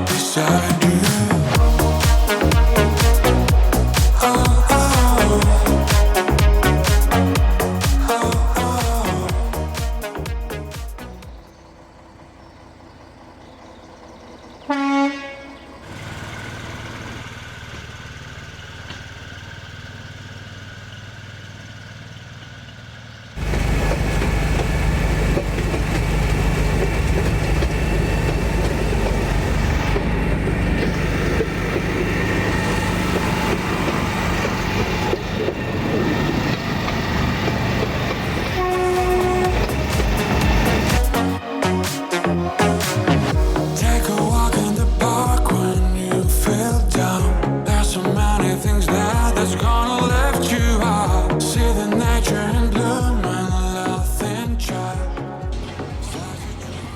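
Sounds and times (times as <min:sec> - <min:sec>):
train running: 0:00.0 - 0:16.8, 0:23.4 - 0:46.8, 0:55.5 - 0:56.9
train horn toot: 0:14.7 - 0:15.7, 0:38.4 - 0:41.2.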